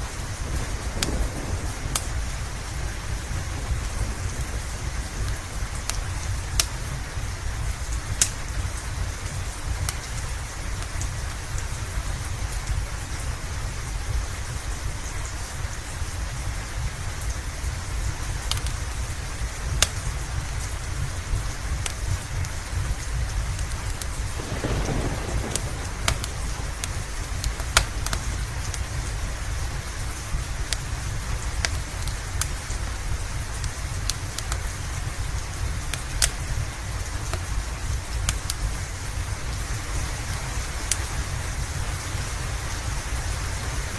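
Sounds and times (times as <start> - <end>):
steady rain: 0.0 - 43.9
wood fire crackling: 0.0 - 43.9
distant thunder roll: 0.1 - 8.6, 22.8 - 31.5.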